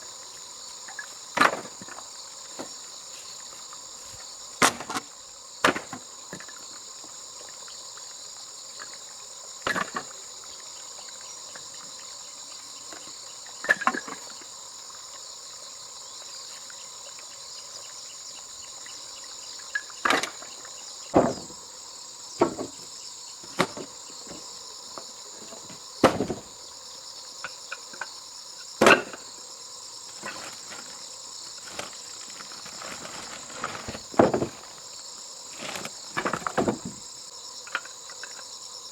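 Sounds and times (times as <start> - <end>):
crickets chirping: 0.0 - 38.9
sharp knocks: 26.0 - 26.5.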